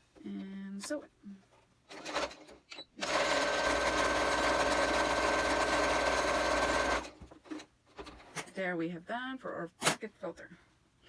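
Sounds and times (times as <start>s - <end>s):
sewing machine stitching: 1.9s - 8.3s.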